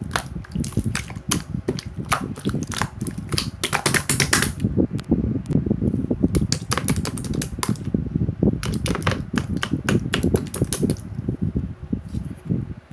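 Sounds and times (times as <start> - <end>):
rapid clicking and tapping: 0.0 - 4.6, 6.3 - 7.9, 8.6 - 11.0.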